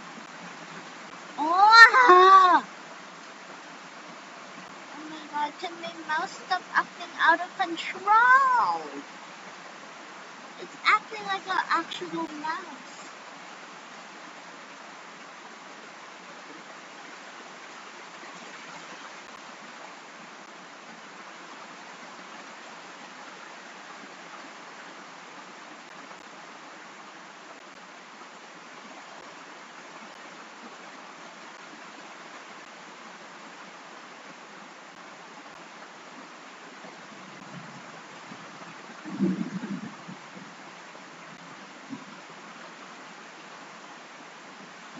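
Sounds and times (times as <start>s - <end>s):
rain falling: 0.0s - 44.9s.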